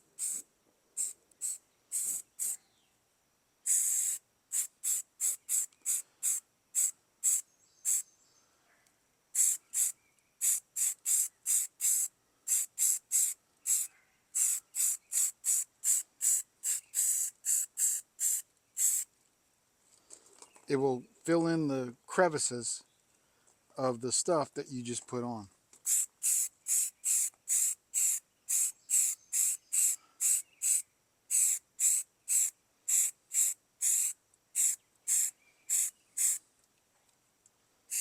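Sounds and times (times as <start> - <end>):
aerosol spray can hissing: 0.2 - 0.4, 1.0 - 2.6, 3.7 - 8.0, 9.4 - 19.1, 25.8 - 36.4.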